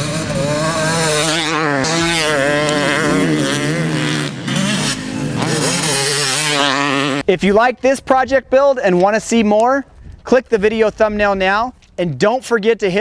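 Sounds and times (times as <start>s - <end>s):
dirt bike engine revving: 0.0s - 7.2s.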